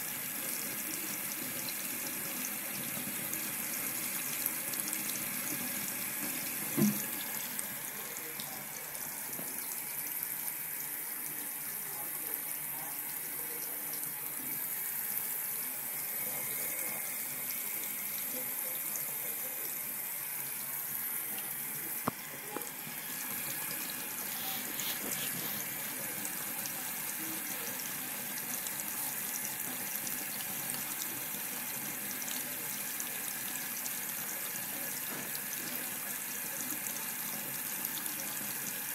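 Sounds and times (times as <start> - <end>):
tap running into a sink: 2.0 - 7.6, 8.4 - 10.4, 21.4 - 27.6, 33.4 - 38.8.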